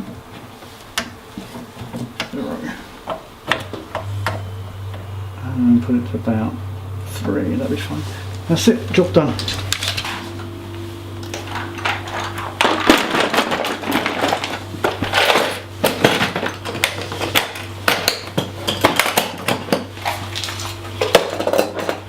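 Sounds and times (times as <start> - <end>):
steady low hum: 0.0 - 22.0
hard objects knocking and clattering: 11.3 - 22.0.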